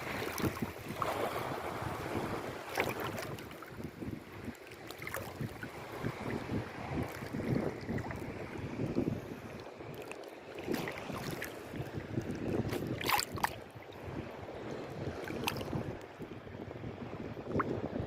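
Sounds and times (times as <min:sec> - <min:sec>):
water splashes: 0:00.0 - 0:16.0
sea water sloshing: 0:00.0 - 0:16.2
wind buffeting microphone: 0:00.0 - 0:18.0.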